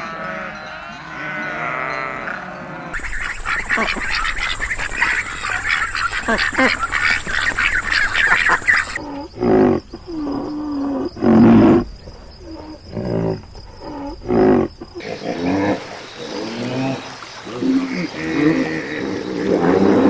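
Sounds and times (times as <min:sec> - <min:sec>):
deep animal calls: 0:01.2 - 0:20.0
ducks quacking: 0:03.0 - 0:09.1.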